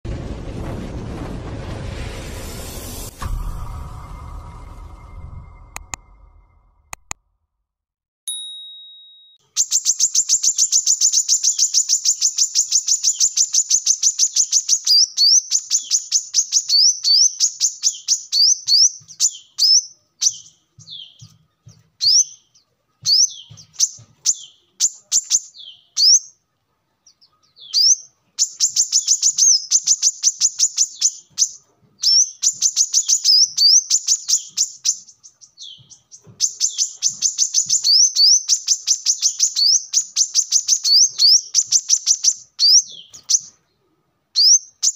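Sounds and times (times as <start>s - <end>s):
sunbird singing rapid high chirps: 9.4s - 26.4s, 27.1s - 43.5s, 44.4s - 44.9s.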